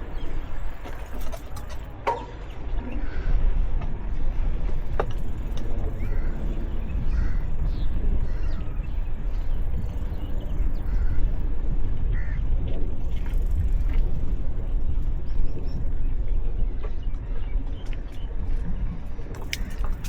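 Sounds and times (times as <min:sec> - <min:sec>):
bicycle tyre and road noise: 0:00.0 - 0:20.0
wind rumble on microphone: 0:00.0 - 0:20.0.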